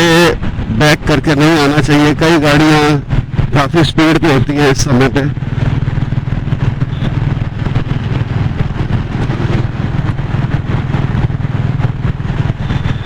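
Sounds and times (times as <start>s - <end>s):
road noise: 0.0s - 13.0s
motorcycle engine running: 4.9s - 13.0s.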